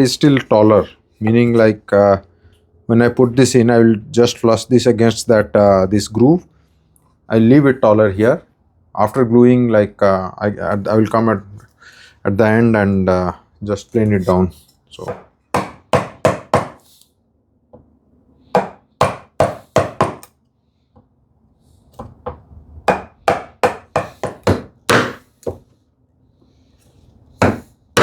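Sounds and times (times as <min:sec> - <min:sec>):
mallet striking a chisel: 0:18.6 - 0:20.3, 0:22.9 - 0:25.6.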